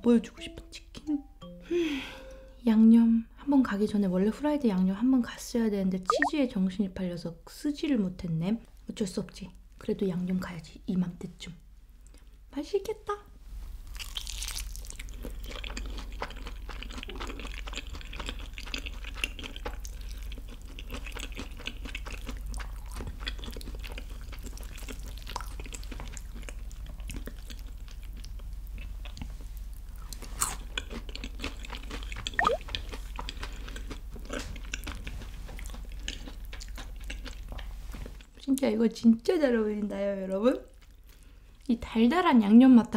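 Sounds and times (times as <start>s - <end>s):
crunchy chewing: 13.9s - 29.4s, 30.0s - 38.3s.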